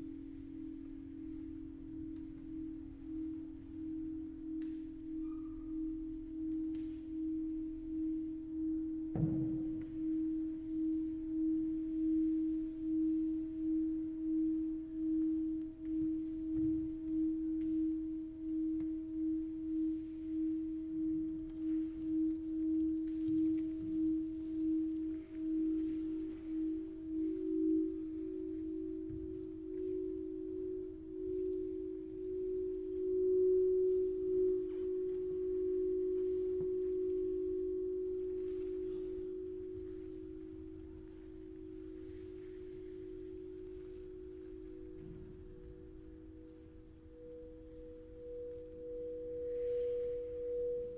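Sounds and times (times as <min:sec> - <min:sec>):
pulsing pure tone: 0:00.0 - 0:50.9
ringing musical drone: 0:00.0 - 0:50.9
soft thump: 0:09.1 - 0:10.0.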